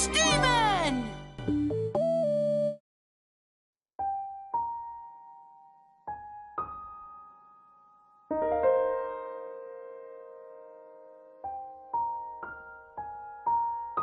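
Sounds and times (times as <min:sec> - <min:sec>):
soft piano melody: 0:04.0 - 0:14.0.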